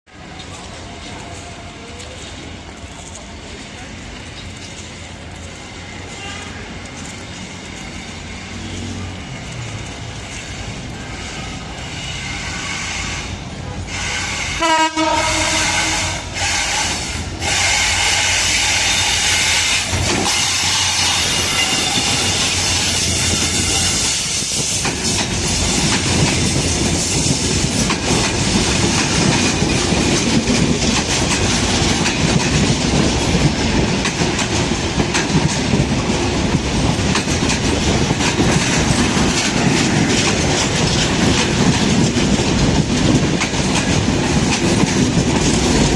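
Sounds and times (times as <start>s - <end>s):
locomotive horn blasts: 14.4s - 16.8s
wheels clattering over rail joints: 19.8s - 45.9s.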